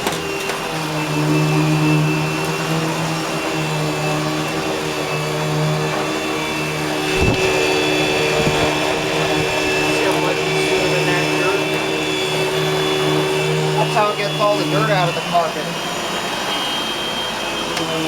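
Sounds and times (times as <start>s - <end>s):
upright vacuum running: 0.0s - 18.0s.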